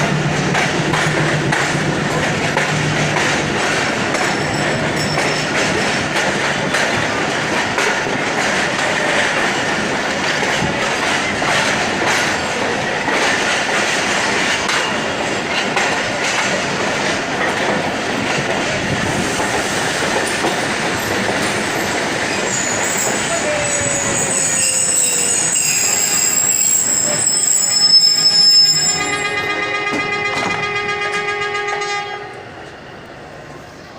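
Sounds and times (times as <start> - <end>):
train wheels clattering over rail joints: 0.0 - 28.9
high wheel squeal: 22.3 - 29.4.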